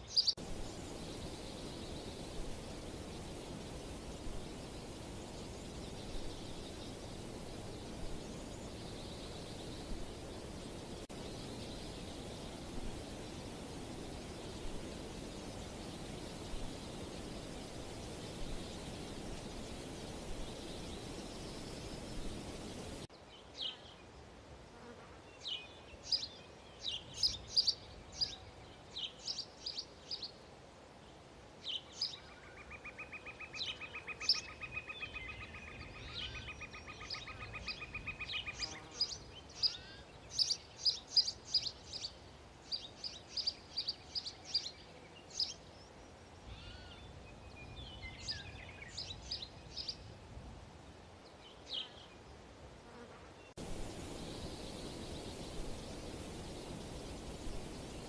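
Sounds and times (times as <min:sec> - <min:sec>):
small birds chirping: 0:00.0 - 0:24.0, 0:31.6 - 0:50.1, 0:53.5 - 0:58.0
steady hiss: 0:00.0 - 0:24.7, 0:48.2 - 0:58.0.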